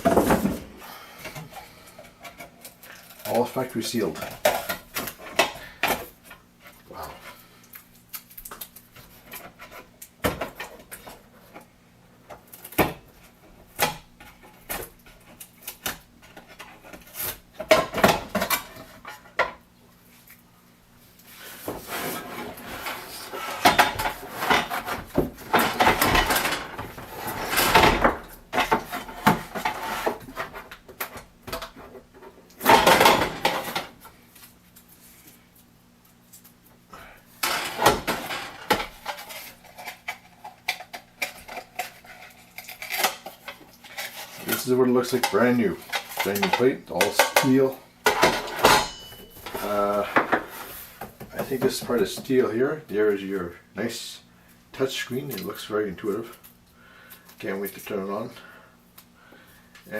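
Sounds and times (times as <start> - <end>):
packaging rustling and scraping: 21.2 - 30.8, 37.4 - 47.2.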